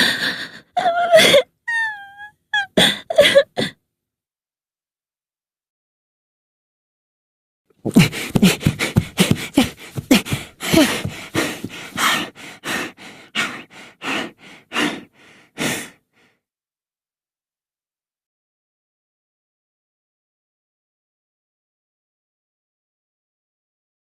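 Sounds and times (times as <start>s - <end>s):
person gasping and puffing: 7.8s - 16.3s.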